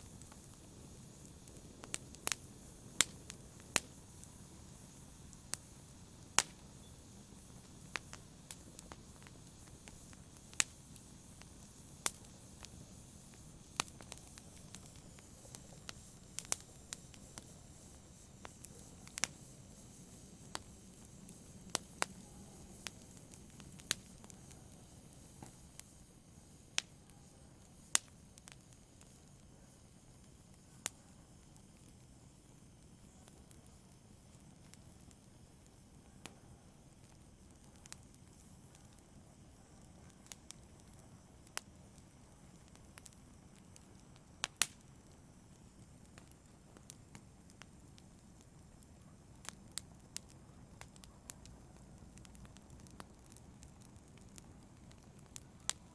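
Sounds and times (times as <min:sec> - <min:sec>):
wood fire crackling and popping: 0:00.0 - 0:55.9.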